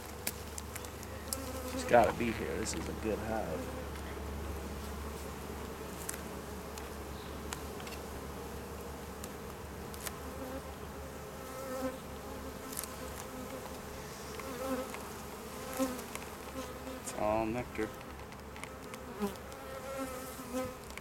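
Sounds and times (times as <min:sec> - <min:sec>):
faint clicks of hive frames: 0:00.0 - 0:03.1, 0:05.9 - 0:08.1, 0:09.0 - 0:10.6, 0:12.6 - 0:16.7, 0:17.8 - 0:21.0
bees buzzing: 0:00.0 - 0:21.0.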